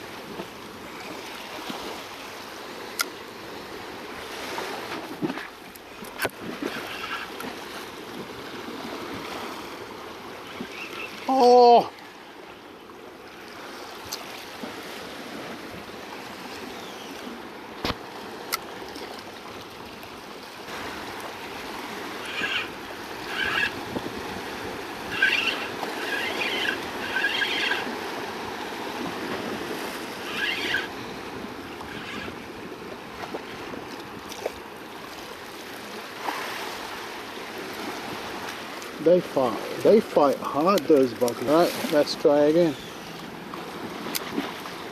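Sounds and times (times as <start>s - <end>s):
sea water washing against rocks: 17.3s - 44.9s.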